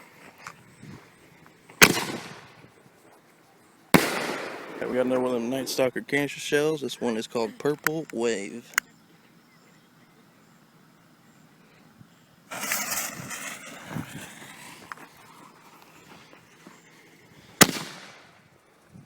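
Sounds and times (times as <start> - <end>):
firework launch whoosh: 12.5 - 15.2, 17.6 - 18.4.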